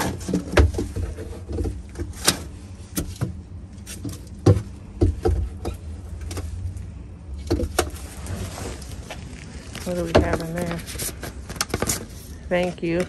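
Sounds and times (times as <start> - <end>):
steady low rumble: 0.8 - 13.0
trash being rummaged by hand: 7.4 - 13.0.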